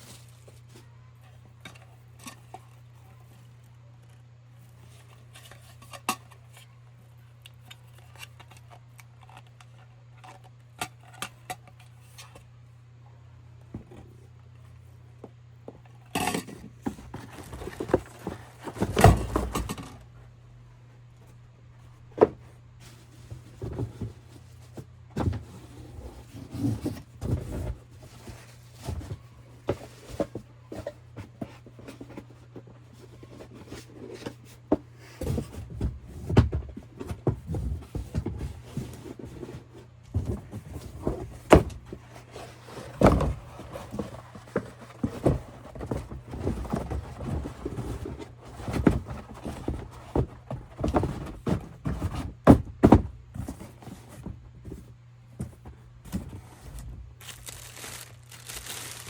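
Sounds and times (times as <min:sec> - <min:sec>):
packaging knocks clicks and rustles: 0:56.7 - 0:59.0.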